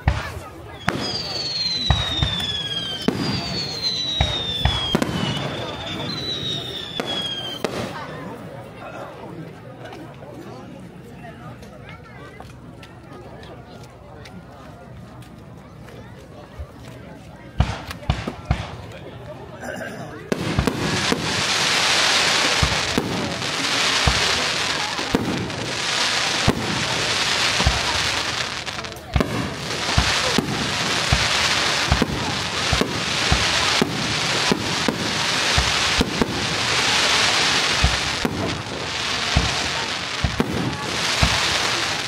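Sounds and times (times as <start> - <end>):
fireworks bangs: 0.0 - 8.6, 17.5 - 19.2, 20.2 - 42.0
hissing of burning fireworks: 0.0 - 13.0, 13.8 - 42.0.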